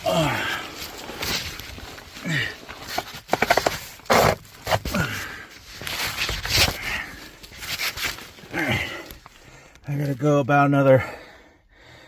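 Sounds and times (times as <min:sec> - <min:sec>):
person grunting and breathing: 0:00.0 - 0:00.8, 0:02.2 - 0:02.7, 0:08.4 - 0:09.6.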